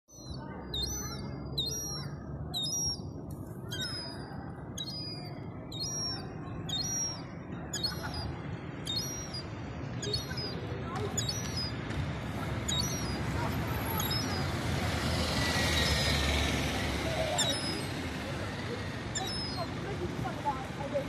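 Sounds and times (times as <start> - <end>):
bird repeating high-pitched call: 0.1 - 3.0, 3.7 - 10.6, 11.2 - 11.8, 12.7 - 13.2, 13.9 - 14.5, 17.4 - 17.9, 19.2 - 19.7.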